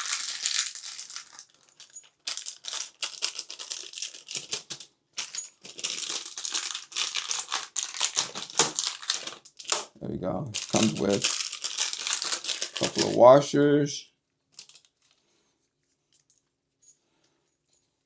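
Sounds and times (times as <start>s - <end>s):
plastic packaging crinkling: 0.0s - 9.4s, 10.5s - 13.3s, 14.6s - 15.2s.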